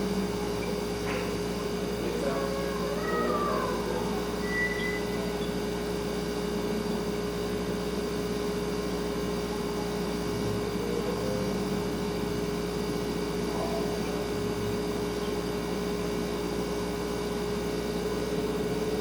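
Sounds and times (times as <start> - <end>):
refrigerator humming: 0.0 - 19.0
faint high chirp: 4.3 - 5.6.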